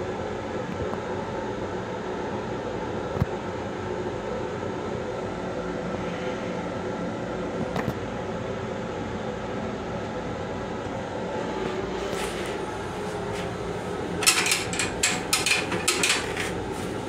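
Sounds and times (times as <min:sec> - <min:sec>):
railcar hum and rumble: 0:03.6 - 0:17.0.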